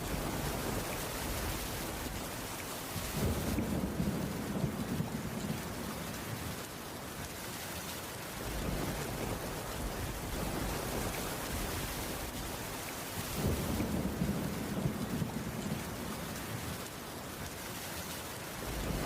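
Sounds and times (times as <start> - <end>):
heavy rain: 0.0 - 19.0
thunder rumble: 18.6 - 19.0.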